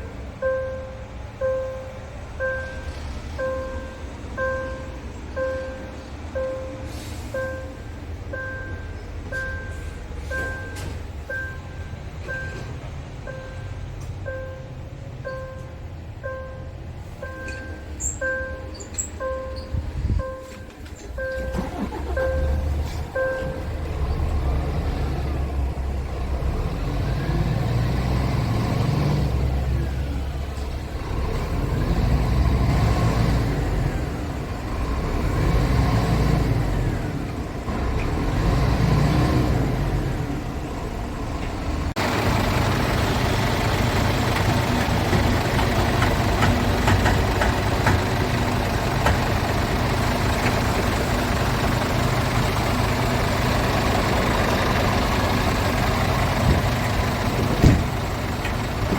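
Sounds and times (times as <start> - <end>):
truck diesel engine revving: 21.0 - 58.9.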